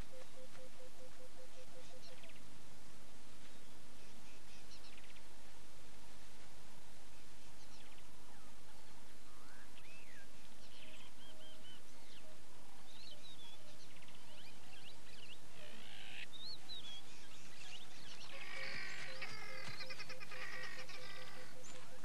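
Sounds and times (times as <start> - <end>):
birds chirping and whistling: 16.0 - 22.0.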